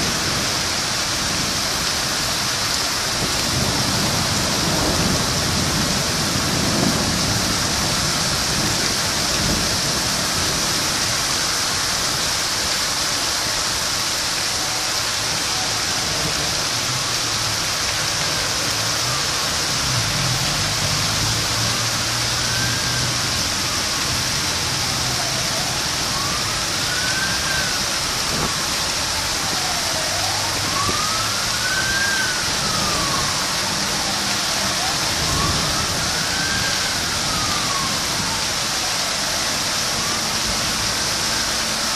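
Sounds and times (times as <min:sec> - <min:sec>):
heavy rain: 0:00.0 - 0:41.9
siren wailing: 0:14.5 - 0:41.9.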